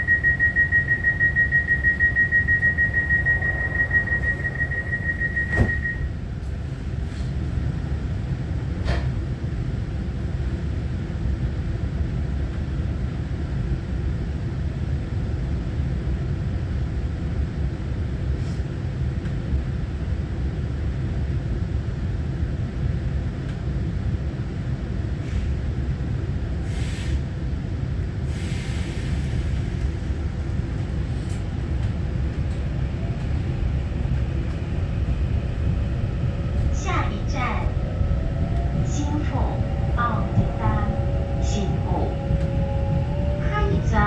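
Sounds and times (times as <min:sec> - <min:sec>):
high steady tone: 0:00.0 - 0:06.1
train cabin rumble: 0:00.0 - 0:13.2, 0:18.1 - 0:44.0.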